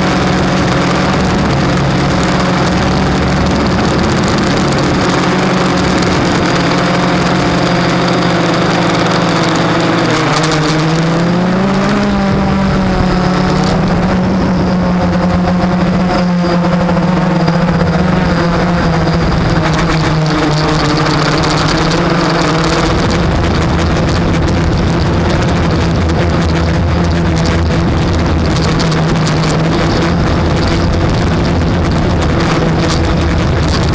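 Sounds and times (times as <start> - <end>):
quadcopter propellers whirring: 0.0 - 33.9.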